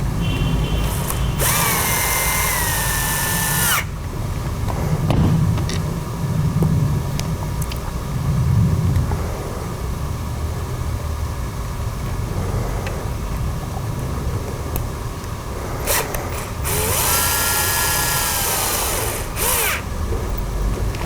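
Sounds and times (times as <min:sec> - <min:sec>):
power drill whine: 0:00.8 - 0:04.0, 0:15.8 - 0:20.0
steady low rumble: 0:00.9 - 0:21.0.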